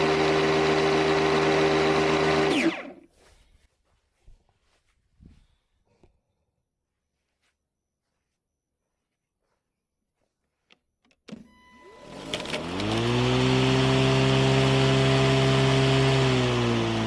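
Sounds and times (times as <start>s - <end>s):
electric lawn mower whine: 0.0s - 3.1s, 11.3s - 17.0s.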